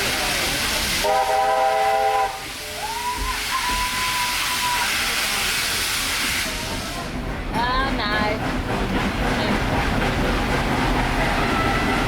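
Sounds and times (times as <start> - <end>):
loud steam hiss: 0.0 - 7.2
steam locomotive whistle: 1.0 - 5.2, 11.3 - 12.0.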